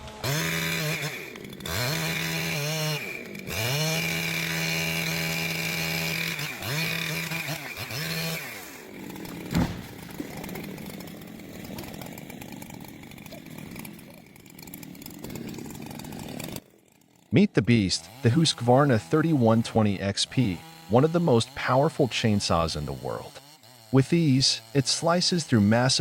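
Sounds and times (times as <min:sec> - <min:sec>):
chainsaw cutting at high revs: 0:00.0 - 0:26.0
sharp knock: 0:09.5 - 0:10.0.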